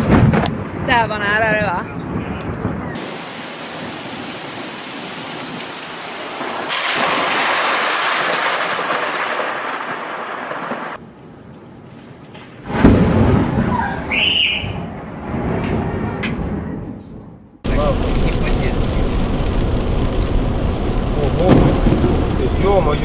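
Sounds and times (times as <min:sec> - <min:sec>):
loud thunderclap with deep rumble: 0:00.0 - 0:11.0, 0:12.7 - 0:17.0, 0:17.6 - 0:23.0
heavy rain hissing: 0:03.0 - 0:11.0, 0:17.6 - 0:23.0.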